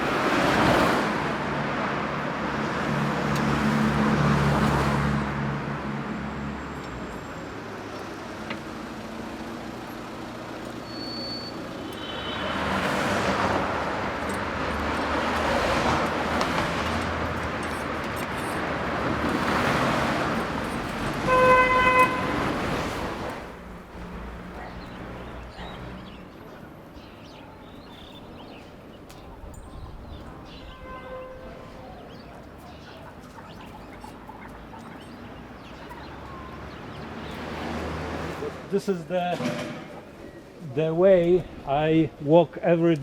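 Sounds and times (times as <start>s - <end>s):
vehicles passing: 0.0s - 43.0s
car horn: 10.8s - 13.4s, 21.1s - 22.8s, 30.6s - 31.7s.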